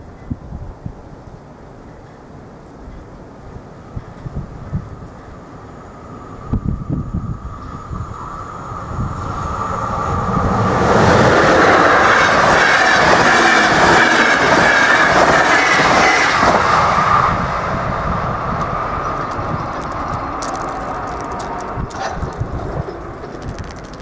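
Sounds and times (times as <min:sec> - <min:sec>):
wheels clattering on rails: 0:18.5 - 0:24.0.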